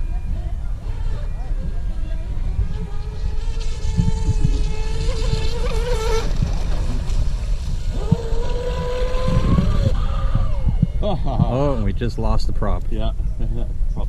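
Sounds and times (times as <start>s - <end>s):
high-pitched motor whine: 0.0s - 14.0s
low rumble: 0.0s - 14.0s.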